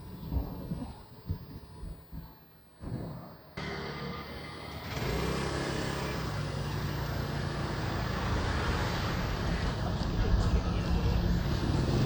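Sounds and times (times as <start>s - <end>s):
motorbike engine running: 3.6s - 12.0s
road and traffic noise: 3.6s - 12.0s.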